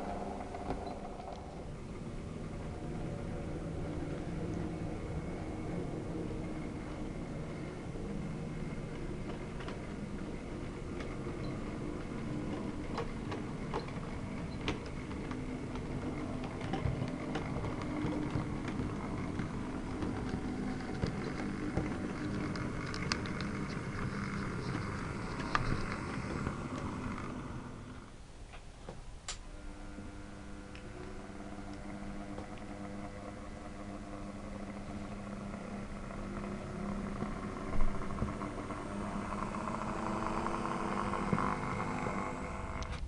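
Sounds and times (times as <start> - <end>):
model train motor hum: 0.0 - 28.2, 29.3 - 43.0
wheels clicking over rail joints: 2.4 - 28.7.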